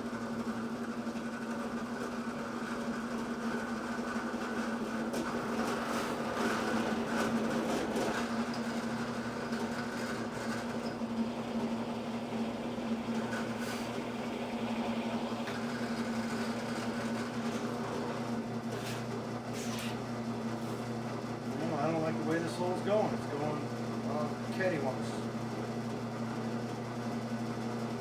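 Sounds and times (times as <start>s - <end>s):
drill press motor humming: 2.5s - 18.5s.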